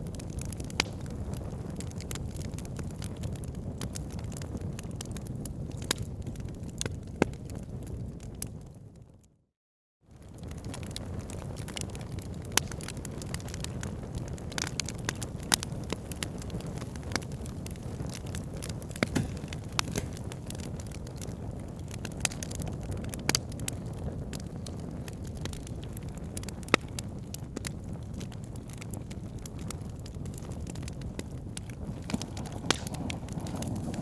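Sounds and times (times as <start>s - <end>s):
fire crackling: 0.0s - 8.7s, 10.1s - 34.0s
fire flame rumble: 0.0s - 9.2s, 10.1s - 34.0s
sharp wood pops: 18.9s - 20.6s, 32.0s - 34.0s.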